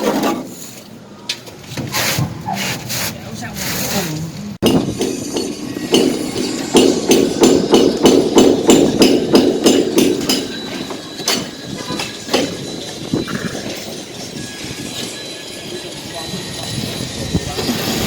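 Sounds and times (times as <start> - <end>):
hammer strikes: 4.6 - 13.0.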